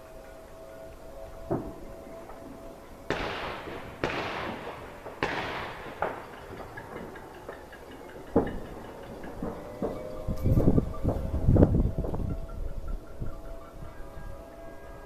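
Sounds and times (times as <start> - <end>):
sharp firework pops: 3.1 - 7.0
fireworks bangs: 3.1 - 12.3.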